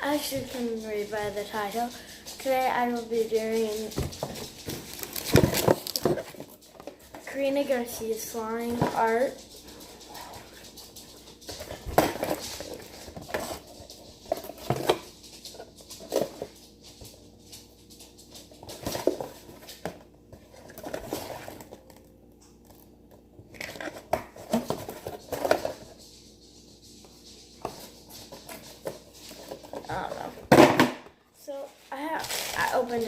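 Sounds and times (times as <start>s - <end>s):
items clicking and knocking: 0.1s - 31.2s
plastic packaging crinkling: 3.5s - 7.3s, 31.9s - 33.0s.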